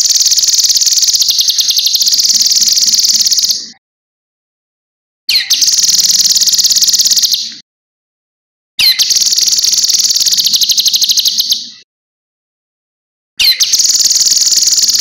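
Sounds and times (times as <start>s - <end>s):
bird singing high trills: 0.0s - 3.8s, 5.3s - 7.6s, 8.8s - 11.7s, 13.4s - 15.0s.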